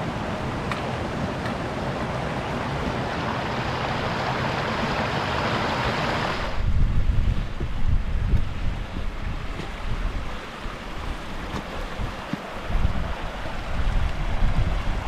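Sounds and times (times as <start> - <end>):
strong wind rushing: 2.4 - 15.0
wind buffeting microphone: 3.6 - 15.0.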